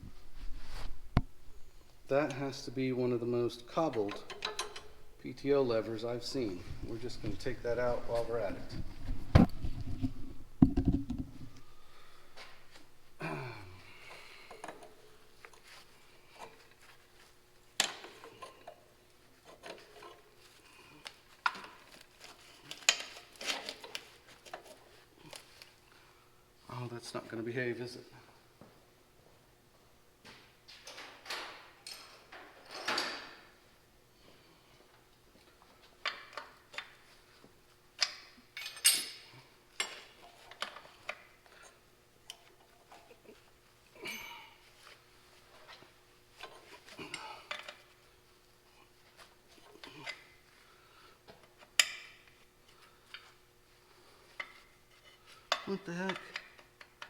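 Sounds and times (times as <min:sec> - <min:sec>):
hand tools clinking on metal: 0:03.7 - 0:08.7, 0:38.0 - 0:40.8
tools and metal parts clinking: 0:03.8 - 0:05.2, 0:21.4 - 0:24.8, 0:38.0 - 0:41.2
metallic clattering rattle: 0:03.8 - 0:11.6.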